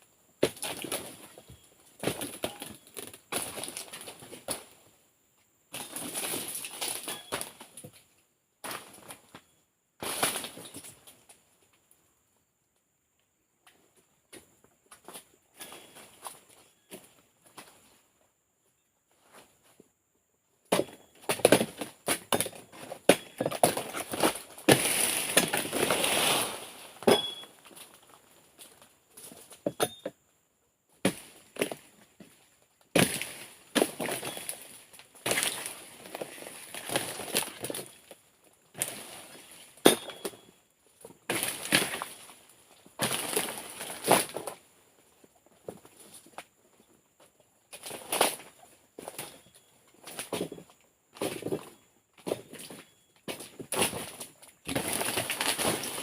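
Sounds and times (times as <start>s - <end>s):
palm fronds crackling and rustling: 0.4s - 4.8s, 5.7s - 7.8s, 8.6s - 11.4s, 21.3s - 29.6s, 31.0s - 46.5s, 47.7s - 56.0s
chisel chopping fronds: 20.7s - 26.0s, 31.0s - 31.8s, 32.9s - 37.9s, 39.8s - 40.4s
rustling crash of fronds: 23.6s - 28.0s, 43.0s - 44.6s, 54.7s - 56.0s.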